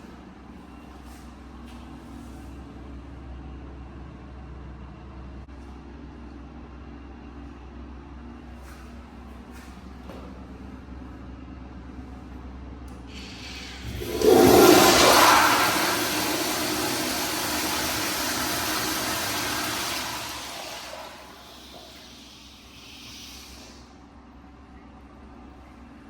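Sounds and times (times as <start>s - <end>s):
toilet flush water rushing: 13.1s - 23.9s.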